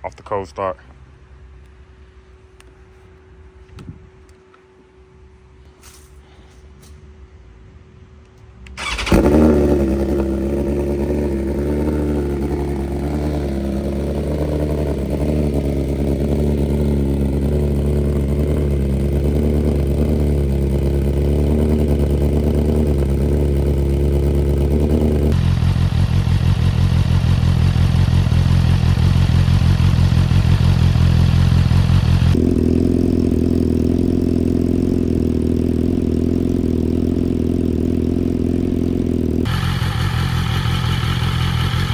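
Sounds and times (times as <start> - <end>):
motorcycle engine cranking: 8.7 - 10.4
motorcycle engine idling: 8.8 - 41.9.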